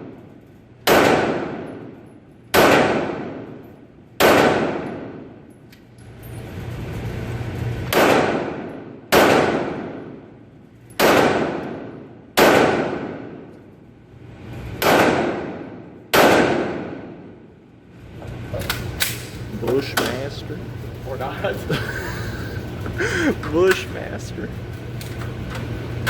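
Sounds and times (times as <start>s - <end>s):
carbine gunshots with echo: 0.8s - 3.6s, 4.2s - 5.4s, 7.9s - 10.3s, 11.0s - 13.5s, 14.8s - 17.4s.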